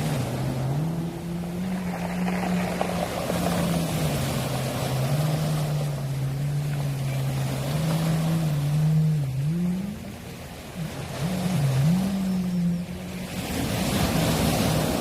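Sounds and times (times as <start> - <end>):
boat engine hum: 0.0 - 15.0
waves washing over pebbles: 0.0 - 15.0
pebbles rattling in backwash: 1.3 - 5.8.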